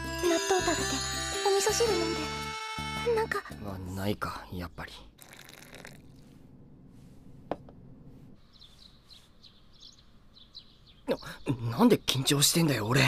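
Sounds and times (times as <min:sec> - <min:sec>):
small birds chirping: 0:08.4 - 0:13.0.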